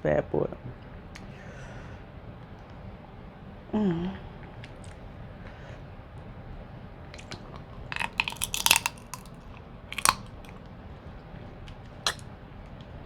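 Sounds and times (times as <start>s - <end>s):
shellfish shells cracking: 7.2s - 10.6s.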